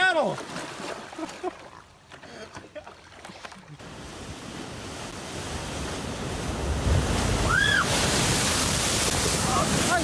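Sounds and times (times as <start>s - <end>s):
water noise: 0.0s - 10.0s
rushing wind: 3.8s - 10.0s.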